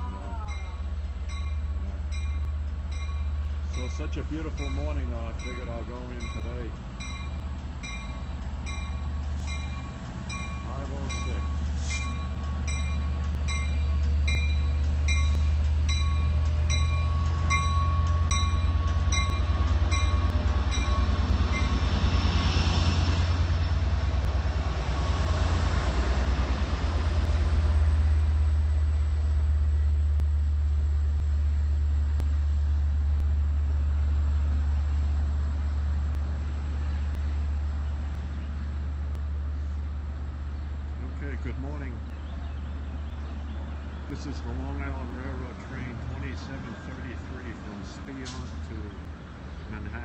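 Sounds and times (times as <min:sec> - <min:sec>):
locomotive bell ringing: 0:00.0 - 0:22.0
diesel locomotive engine hum: 0:00.0 - 0:50.0
train coaches rolling past: 0:00.0 - 0:50.0.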